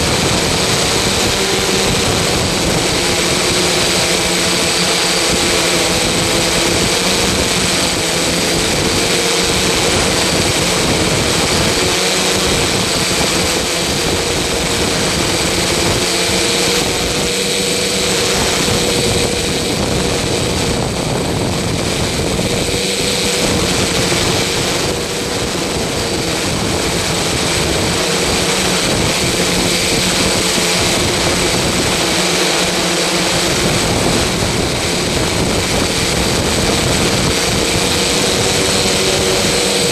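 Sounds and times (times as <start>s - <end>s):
loud mechanical drone: 0.0s - 39.9s.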